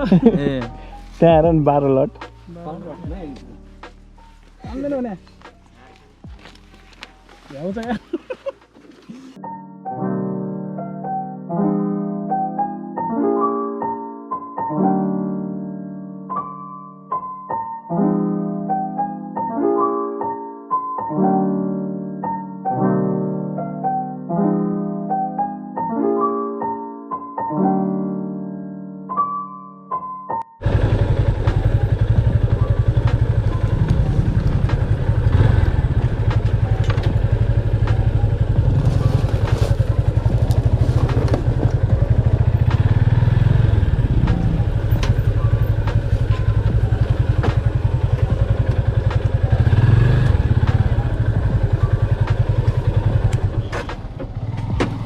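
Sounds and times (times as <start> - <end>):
piano music: 0.0 - 55.0
motorcycle engine running: 30.6 - 55.0.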